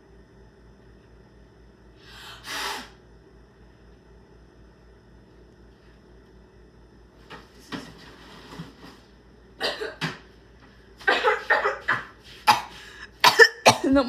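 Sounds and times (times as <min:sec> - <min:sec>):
person coughing: 0:09.6 - 0:10.2, 0:11.0 - 0:14.0.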